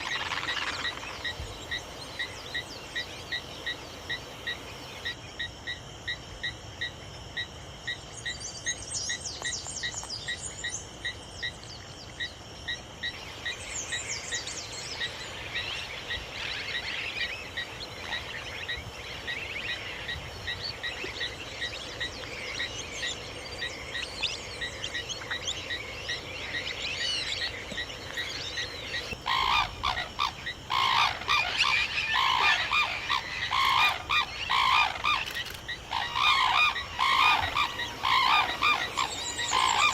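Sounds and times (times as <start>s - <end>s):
high twittering bird chirps: 18.1s - 39.9s
large birds honking: 29.0s - 35.2s, 35.9s - 39.9s.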